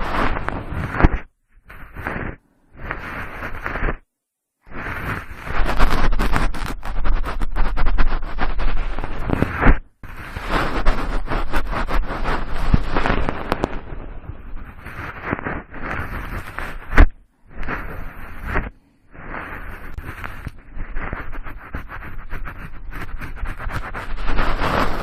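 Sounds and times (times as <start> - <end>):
cotton swab rubbing microphone: 0.0 - 25.0.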